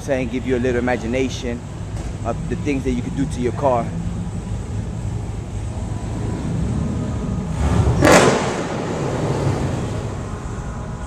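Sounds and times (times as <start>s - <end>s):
car engines rumbling: 0.0s - 11.0s
loud rushing burst: 7.5s - 9.9s.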